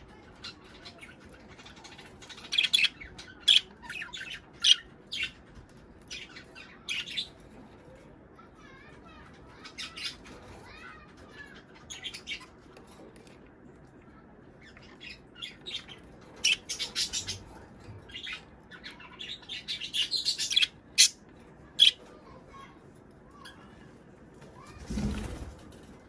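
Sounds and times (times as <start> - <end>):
budgerigars chirping and squawking: 0.1 - 5.4, 6.0 - 7.4, 9.6 - 10.6, 11.5 - 12.6, 14.6 - 21.2, 21.8 - 22.1.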